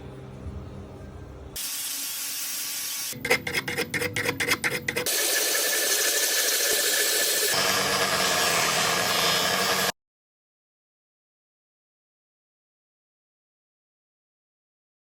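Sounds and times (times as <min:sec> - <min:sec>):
power tool hissing: 0:01.6 - 0:03.2, 0:05.0 - 0:09.9
rasping strokes on metal: 0:03.1 - 0:09.9.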